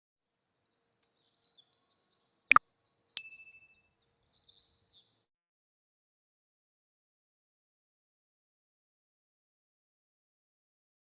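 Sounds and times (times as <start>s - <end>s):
small birds chirping: 0.2s - 3.2s, 3.9s - 5.2s
bright bell-like ding: 3.2s - 3.8s.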